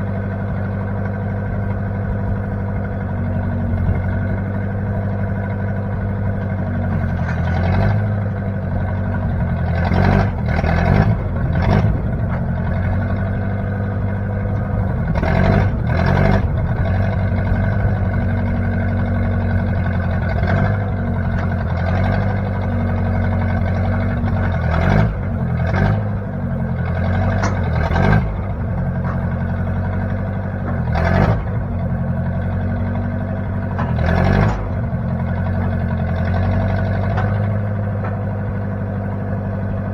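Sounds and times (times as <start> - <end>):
backhoe engine running: 0.0 - 39.9
machine clanks and knocks: 27.0 - 28.2, 28.8 - 29.7, 33.6 - 34.9, 36.2 - 38.8.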